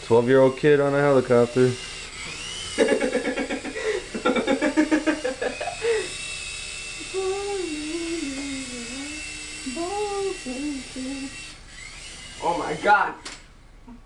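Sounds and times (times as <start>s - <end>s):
small electric motors whining: 0.0s - 13.6s
drawn-out voice sound: 7.0s - 11.4s.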